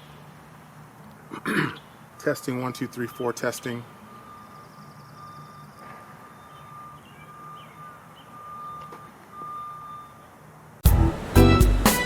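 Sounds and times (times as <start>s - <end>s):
reversing beeper beeps: 2.2s - 10.4s
low engine hum: 10.8s - 12.0s.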